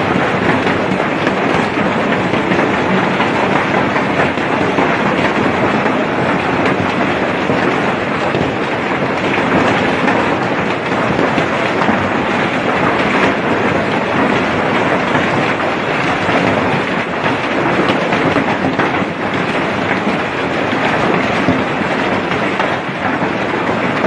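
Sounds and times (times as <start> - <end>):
heavy rain and hail clattering: 0.0 - 24.0.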